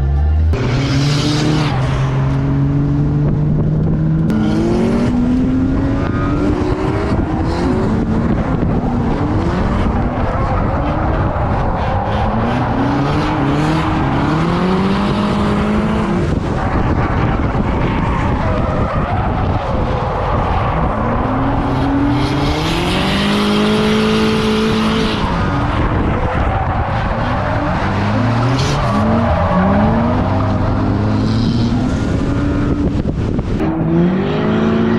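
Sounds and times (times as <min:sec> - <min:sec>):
tyre and road noise: 0:00.0 - 0:34.9
tyres skidding: 0:03.8 - 0:34.9
car engine revving hard: 0:04.2 - 0:11.3, 0:12.1 - 0:17.2, 0:20.8 - 0:34.9.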